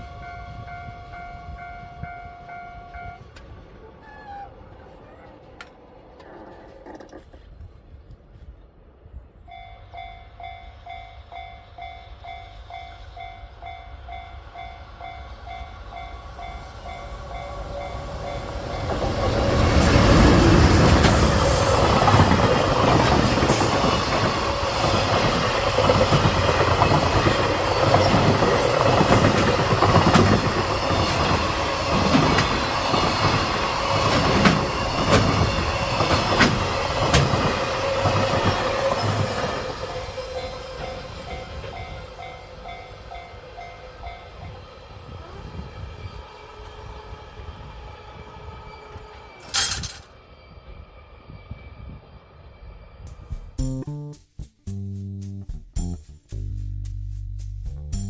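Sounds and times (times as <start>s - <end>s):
train wheels clattering over rail joints: 49.4s - 50.1s.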